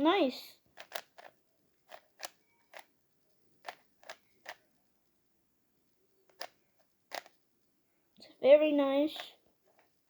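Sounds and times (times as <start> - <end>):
puzzle cube clicking: 0.7 - 3.0, 3.6 - 4.7, 6.2 - 7.4.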